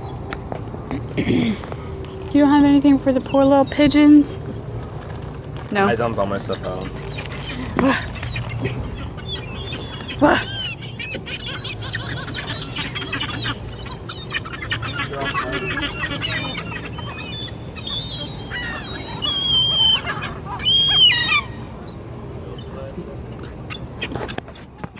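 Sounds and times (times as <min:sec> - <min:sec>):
gulls calling: 0:00.0 - 0:24.9.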